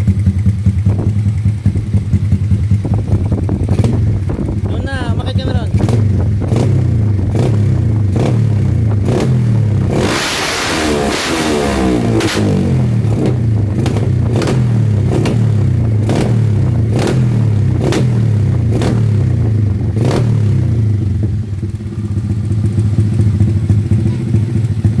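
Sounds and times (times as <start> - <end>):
motorcycle exhaust idling loudly: 0.0 - 10.0, 11.7 - 25.0
exhaust cracks: 0.0 - 25.0.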